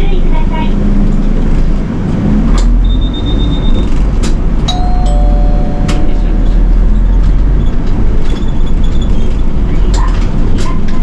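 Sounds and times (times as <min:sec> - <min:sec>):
bus engine and road rumble: 0:00.0 - 0:11.0
two-tone electronic chime: 0:04.7 - 0:06.4.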